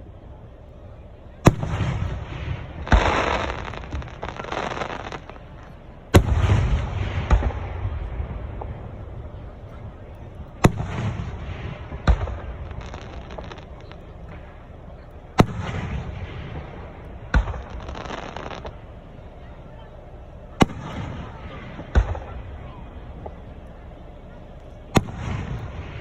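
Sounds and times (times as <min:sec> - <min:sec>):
fireworks bangs: 0:00.0 - 0:26.0
fireworks crackle: 0:00.0 - 0:26.0.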